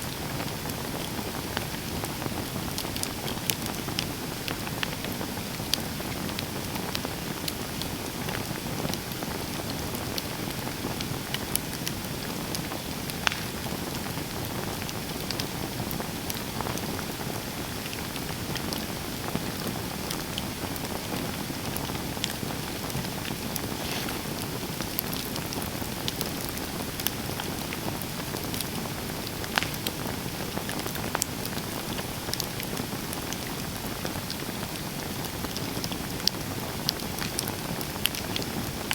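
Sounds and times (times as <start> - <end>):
campfire crackling: 0.0 - 38.9
sharp pops of fire: 11.3 - 14.6, 22.2 - 31.4.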